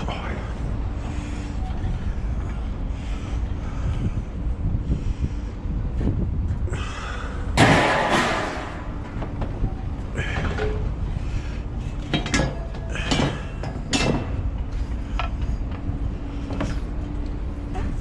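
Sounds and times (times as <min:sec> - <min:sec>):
steady low rumble: 0:00.0 - 0:18.0
scrap metal crash and scrape: 0:07.6 - 0:09.0
metallic clanks: 0:07.6 - 0:09.2, 0:12.0 - 0:14.5.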